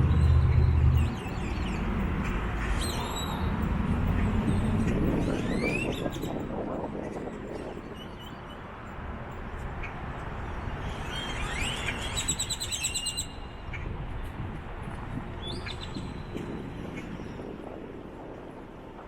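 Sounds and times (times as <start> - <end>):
steady low rumble: 0.0 - 7.5.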